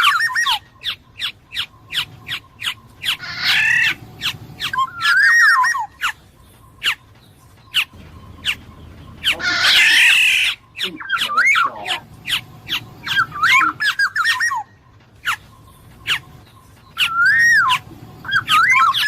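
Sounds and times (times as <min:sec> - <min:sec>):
bird warbling whistle: 0:00.0 - 0:06.2, 0:07.7 - 0:19.0
bird calling sharp notes: 0:00.0 - 0:19.0
bird harsh nasal squawk: 0:01.6 - 0:06.2, 0:09.2 - 0:15.4.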